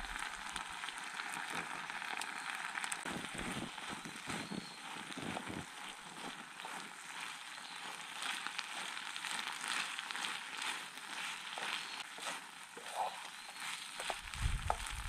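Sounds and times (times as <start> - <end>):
noodles sizzling in frying pan: 0.0 - 15.0
wooden spoon scraping pan: 3.0 - 15.0.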